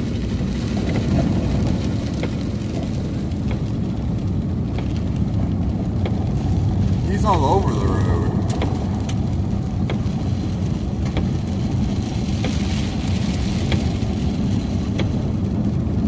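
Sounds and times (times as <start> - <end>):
car cabin road rumble: 0.0 - 16.0
sharp ticks against car body: 0.8 - 6.4, 9.8 - 10.1, 11.0 - 12.6, 14.9 - 15.2.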